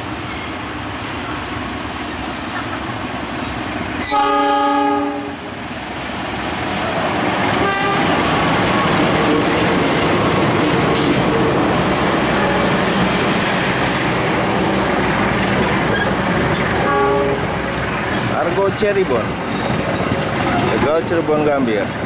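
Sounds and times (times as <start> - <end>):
train wheels on rails: 0.0 - 4.5, 5.2 - 22.0
locomotive chord horn: 4.0 - 5.4, 7.6 - 8.2, 16.8 - 17.5.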